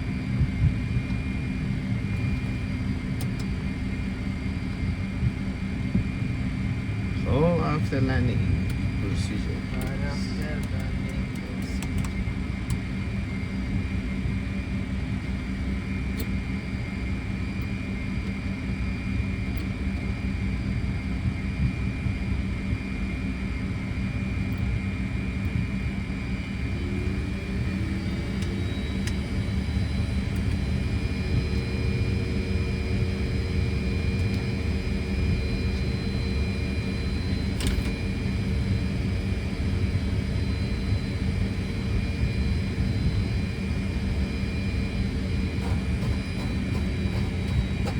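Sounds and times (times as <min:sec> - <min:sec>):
jet engines low rumble: 0:00.0 - 0:47.9
high whine: 0:25.4 - 0:47.9.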